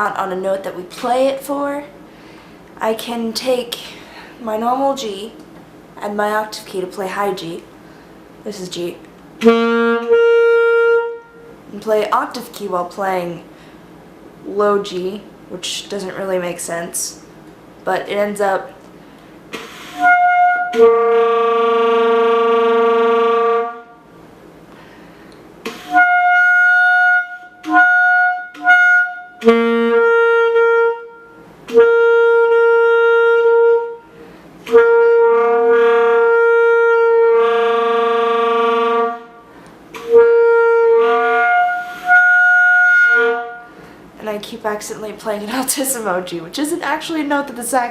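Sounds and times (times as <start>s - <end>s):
saxophone held notes: 9.4s - 11.6s, 19.6s - 24.0s, 25.7s - 43.8s.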